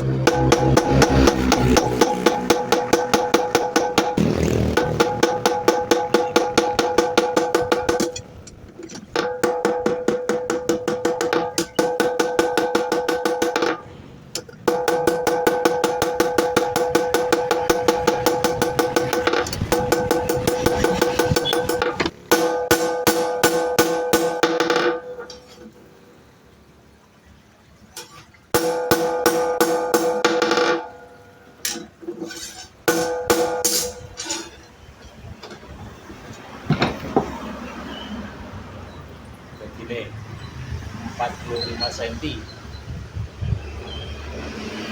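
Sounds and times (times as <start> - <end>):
hammer striking steel on anvil: 0.0 - 4.2, 9.0 - 25.7, 28.0 - 34.7
hammer striking metal blade: 0.1 - 4.2, 28.0 - 34.6.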